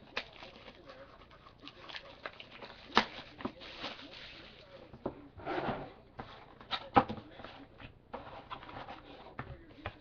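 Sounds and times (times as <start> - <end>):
packaging rustling: 0.0 - 4.7.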